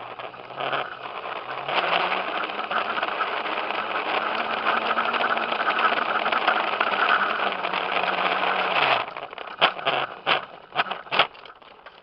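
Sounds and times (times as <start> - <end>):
electric bike motor whirring: 0.0 - 12.0.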